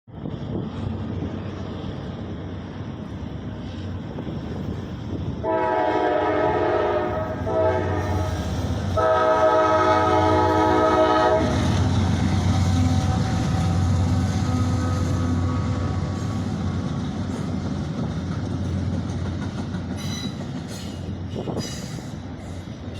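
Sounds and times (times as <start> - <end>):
train rumbling: 0.1 - 22.9
locomotive horn blasts: 5.4 - 11.8.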